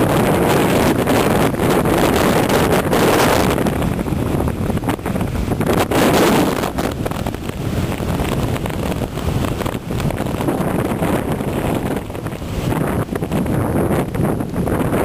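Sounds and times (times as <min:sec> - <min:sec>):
rough sea surf: 0:00.0 - 0:15.0
storm wind buffeting microphone: 0:00.0 - 0:15.0.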